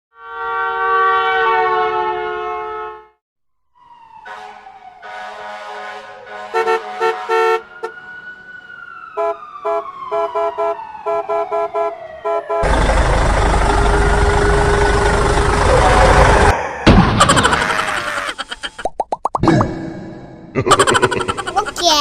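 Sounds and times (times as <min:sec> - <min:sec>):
short horn-like honks: 0:00.2 - 0:03.2, 0:04.3 - 0:07.7.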